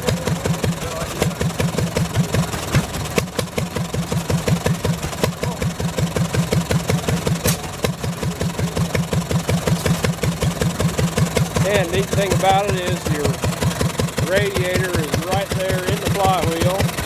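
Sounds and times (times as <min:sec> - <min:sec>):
gas engine running: 0:00.0 - 0:17.0
sharp click: 0:07.4 - 0:07.7.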